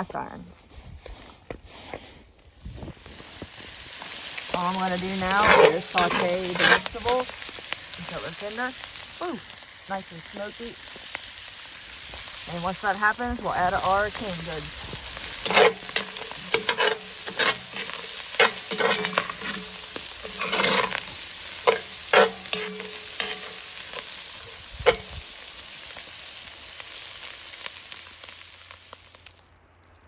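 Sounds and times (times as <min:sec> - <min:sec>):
food sizzling in a pot: 0:02.7 - 0:29.4
utensil scraping iron pot: 0:04.0 - 0:08.6, 0:12.2 - 0:25.5.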